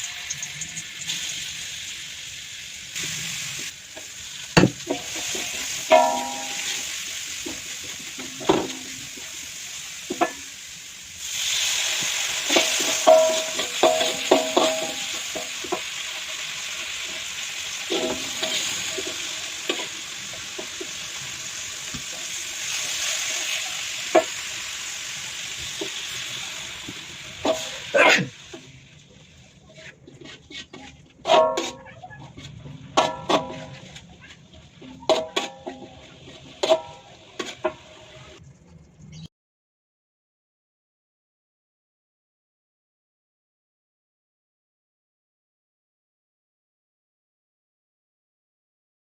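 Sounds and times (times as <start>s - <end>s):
food sizzling in oil: 0.0s - 30.7s, 31.3s - 38.4s
metal spatula scraping a pan: 3.0s - 9.5s, 11.3s - 24.5s, 27.4s - 28.3s, 29.7s - 38.4s.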